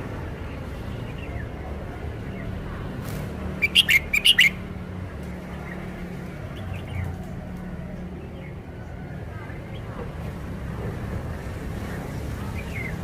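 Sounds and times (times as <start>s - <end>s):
bird singing sharp notes: 3.6s - 4.6s.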